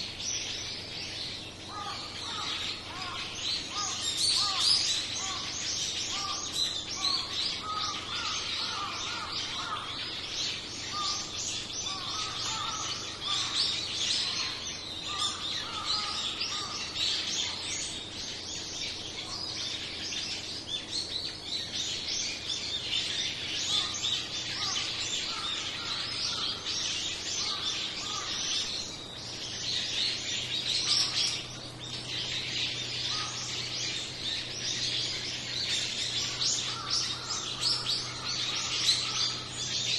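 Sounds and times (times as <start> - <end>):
lower repeated bird calls: 0.0 - 39.9
songbirds chirping: 0.0 - 39.9.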